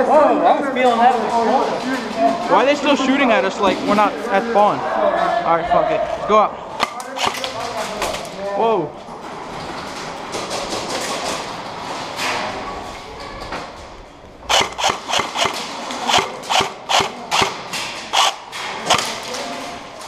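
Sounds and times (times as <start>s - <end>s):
airsoft gun cracks: 6.8s - 7.7s, 14.5s - 19.4s.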